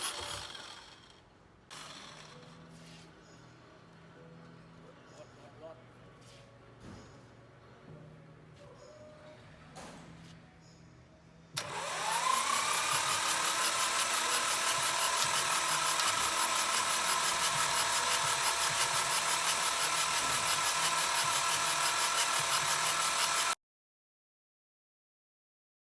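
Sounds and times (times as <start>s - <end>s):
power tool whining: 0.0s - 2.9s, 11.6s - 23.6s.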